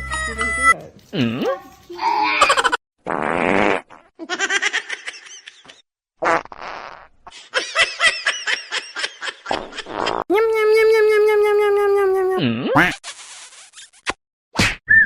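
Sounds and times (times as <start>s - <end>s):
person laughing: 2.3s - 2.8s.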